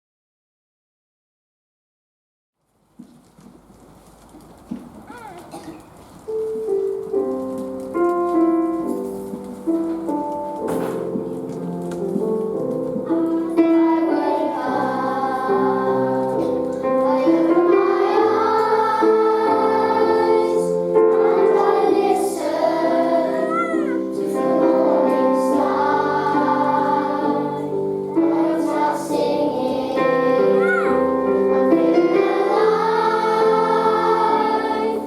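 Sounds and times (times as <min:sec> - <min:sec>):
instrumental accompaniment: 0:05.1 - 0:35.0
children's choir singing: 0:12.4 - 0:35.0.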